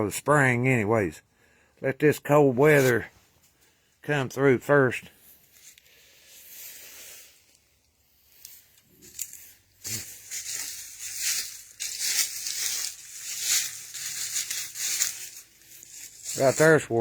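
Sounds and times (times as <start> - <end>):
footsteps crunching on dry ground: 8.2 - 17.0.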